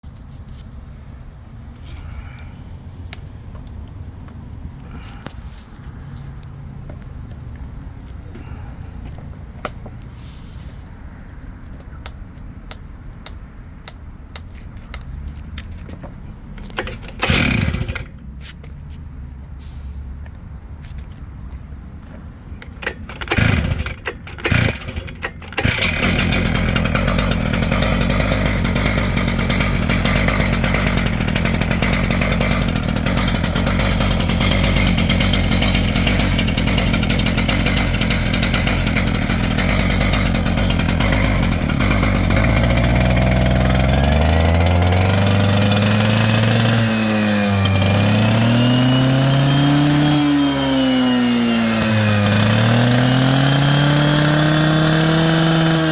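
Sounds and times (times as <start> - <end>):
concrete saw engine revving: 16.6 - 18.2, 22.6 - 55.9.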